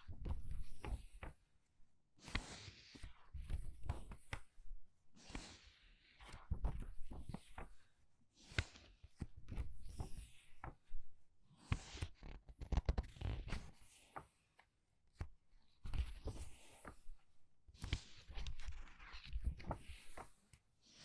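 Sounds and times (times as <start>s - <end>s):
book pages turning: 11.6s - 14.3s, 15.2s - 17.2s, 17.8s - 20.5s.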